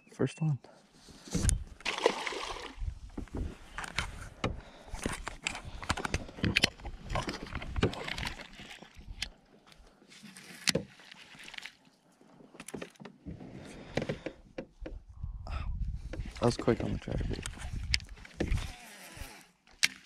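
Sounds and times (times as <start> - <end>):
knocks and clicks on a kayak: 3.1 - 8.4, 12.6 - 15.2, 16.0 - 18.7.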